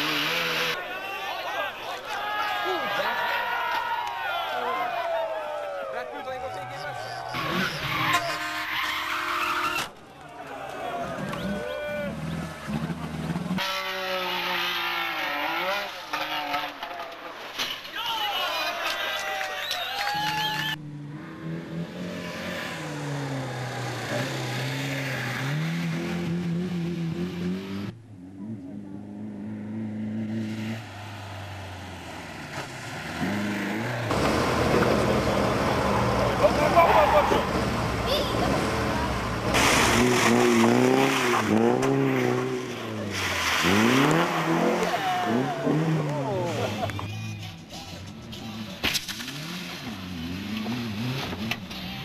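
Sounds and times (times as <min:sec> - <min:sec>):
car engine accelerating: 0:20.4 - 0:47.0.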